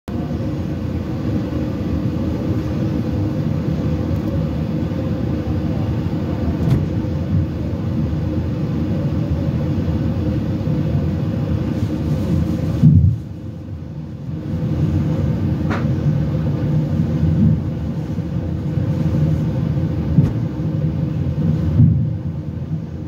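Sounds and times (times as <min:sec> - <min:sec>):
constant hum: 0:00.1 - 0:23.0
train running gear rumble: 0:00.1 - 0:23.0.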